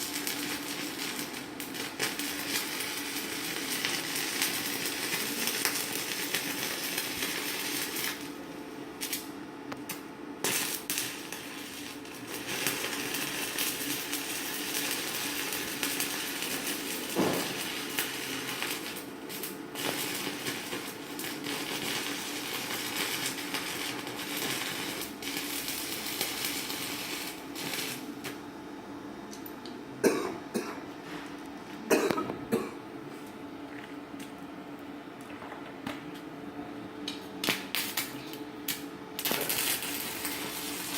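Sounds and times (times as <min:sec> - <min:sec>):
welding arc crackling: 0:00.0 - 0:28.5, 0:37.0 - 0:40.9.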